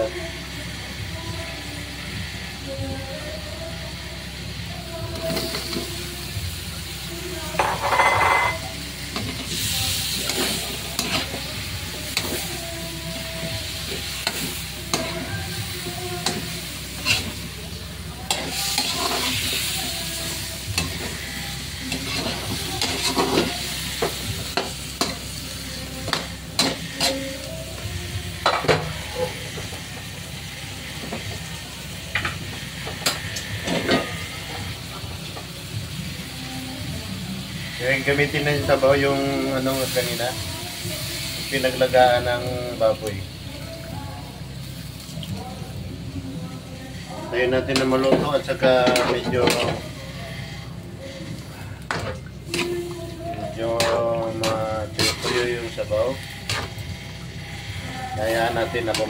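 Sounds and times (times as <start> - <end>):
food sizzling in a pan: 0.0 - 59.0
utensil scraping a pan: 53.8 - 56.8.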